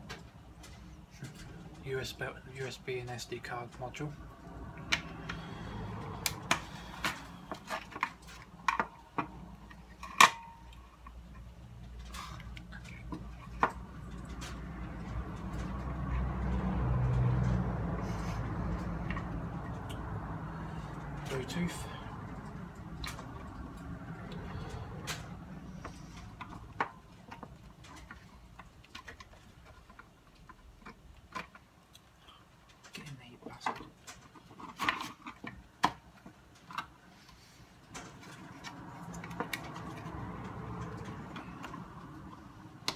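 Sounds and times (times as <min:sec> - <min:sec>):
plastic parts clicking and tapping: 0:22.3 - 0:32.1, 0:37.9 - 0:42.9.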